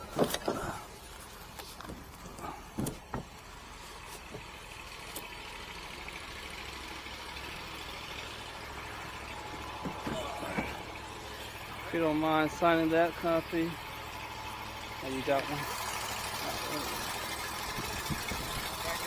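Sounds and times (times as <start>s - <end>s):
engine idling: 0.0s - 19.0s
sharp knocks and clunks: 1.8s - 3.4s, 9.0s - 11.2s.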